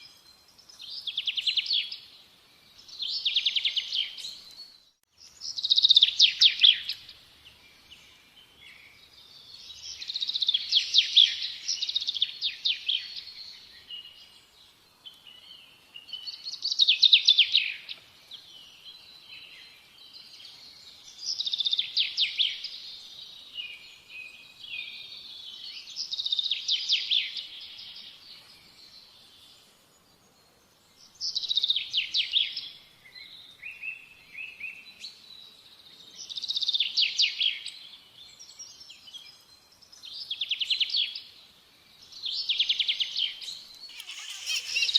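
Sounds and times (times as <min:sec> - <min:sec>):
birds trilling chatter: 0:43.9 - 0:44.9
quiet bird twittering: 0:43.9 - 0:44.9.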